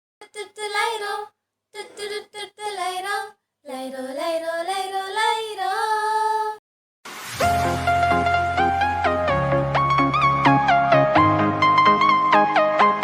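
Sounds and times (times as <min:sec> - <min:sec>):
child singing unaccompanied: 0:00.2 - 0:06.6.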